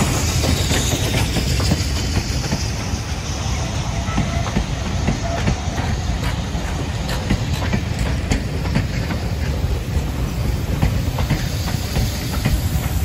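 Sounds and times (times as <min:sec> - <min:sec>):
steam hiss: 0:00.0 - 0:13.0
train coaches rumbling past: 0:00.0 - 0:13.0
wheels clicking over rail joints: 0:04.1 - 0:13.0.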